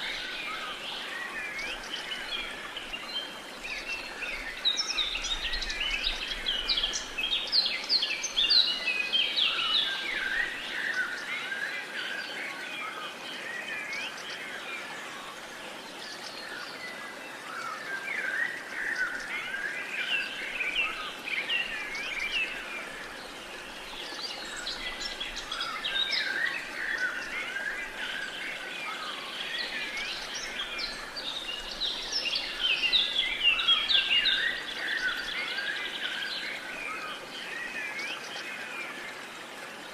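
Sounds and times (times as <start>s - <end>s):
faint steady hiss: 0.0s - 39.9s
birds chirping and trilling: 17.5s - 39.0s.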